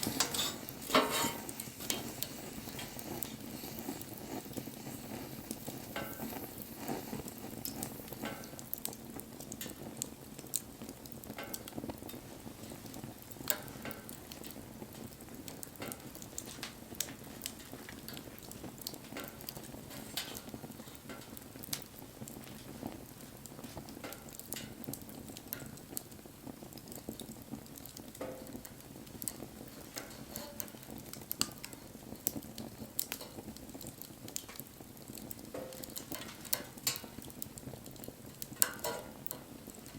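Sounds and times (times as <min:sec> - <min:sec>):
brief hiss from fire: 0:00.0 - 0:08.6
wood fire crackling: 0:00.0 - 0:39.9.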